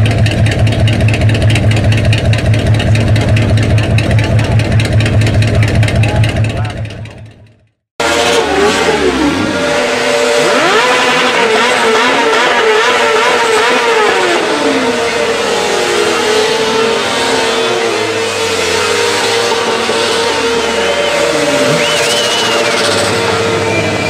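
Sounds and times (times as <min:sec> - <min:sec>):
car engine revving: 0:00.0 - 0:07.4, 0:08.0 - 0:24.0
tyres screeching: 0:08.1 - 0:24.0.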